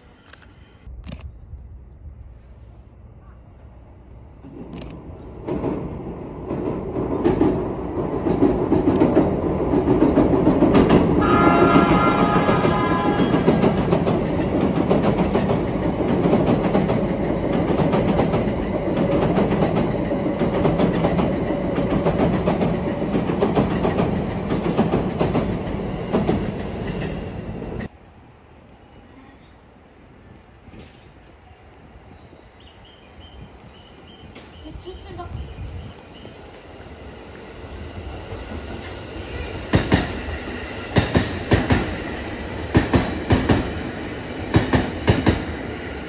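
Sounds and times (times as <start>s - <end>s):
train rumbling over bridge: 1.9s - 46.0s
train horn: 11.2s - 13.8s.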